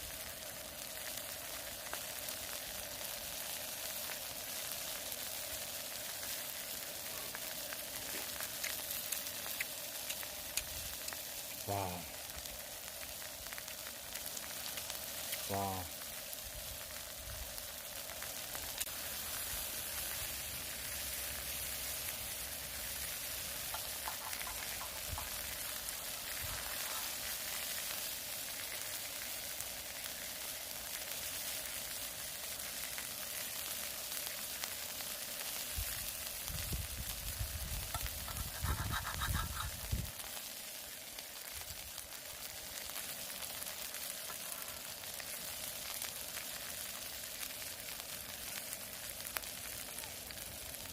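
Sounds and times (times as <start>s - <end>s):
meat sizzling on a griddle: 0.0s - 50.9s.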